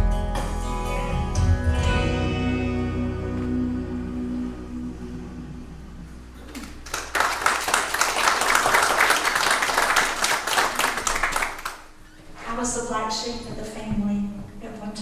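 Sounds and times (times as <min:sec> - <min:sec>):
congregation applauding: 0:06.4 - 0:12.0.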